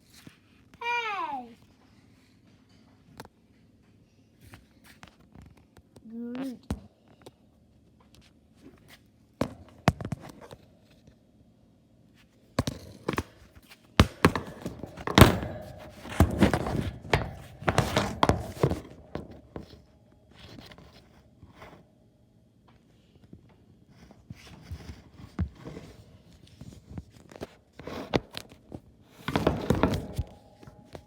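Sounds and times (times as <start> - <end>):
irregular knocks and thumps: 14.0 - 19.8.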